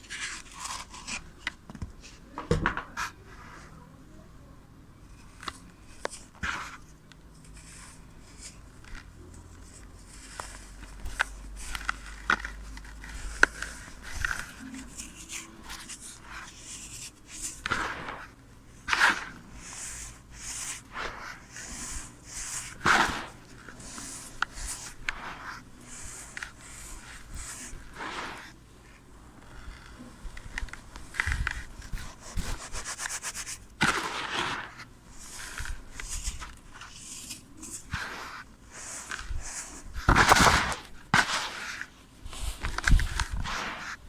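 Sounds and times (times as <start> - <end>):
sand block crunching: 11.7 - 28.6, 31.4 - 37.0, 37.6 - 41.9.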